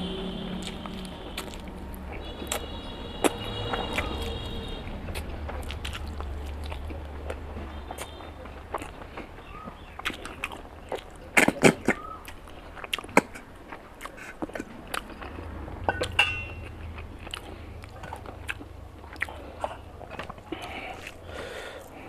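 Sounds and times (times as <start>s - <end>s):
person chewing meat off bone: 0.5s - 4.4s, 5.1s - 22.0s
wet mouth clicks and smacks: 0.6s - 1.7s.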